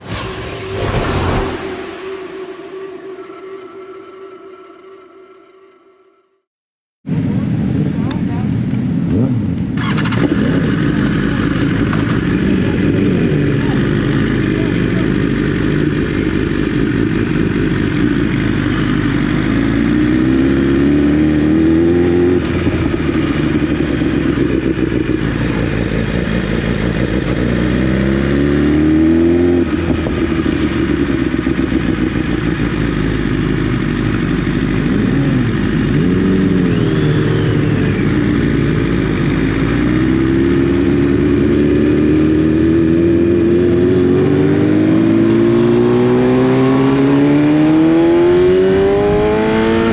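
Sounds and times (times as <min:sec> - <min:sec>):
motorcycle engine accelerating: 0:00.0 - 0:06.1, 0:07.3 - 0:49.9.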